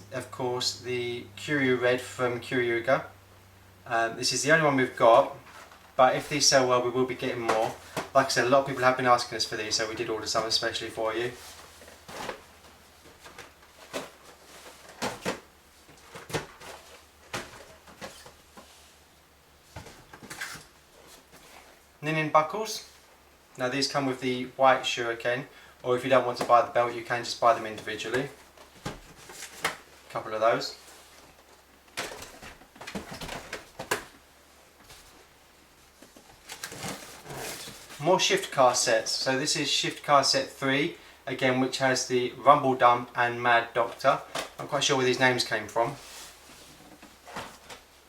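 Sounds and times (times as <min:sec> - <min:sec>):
boxes knocking and rustling: 0:05.0 - 0:21.8, 0:26.0 - 0:38.5, 0:44.1 - 0:48.0.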